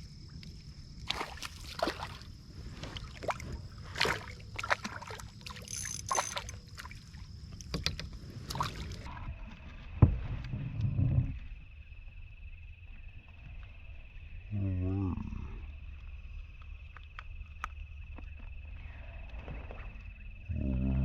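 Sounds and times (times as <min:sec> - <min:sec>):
high-pitched insect buzz: 0:05.5 - 0:06.6
kayak gear knocking and tapping: 0:07.6 - 0:08.2.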